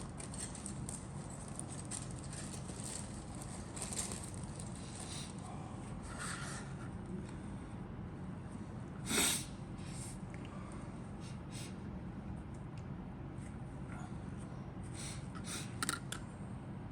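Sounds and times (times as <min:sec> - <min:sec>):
soft handling rustles: 0:00.1 - 0:07.4.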